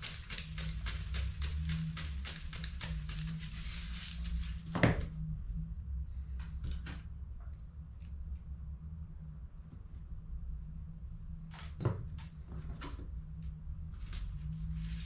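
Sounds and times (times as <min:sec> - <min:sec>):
scraping strokes on plastic: 0:00.0 - 0:04.7
steady low hum: 0:00.0 - 0:15.0.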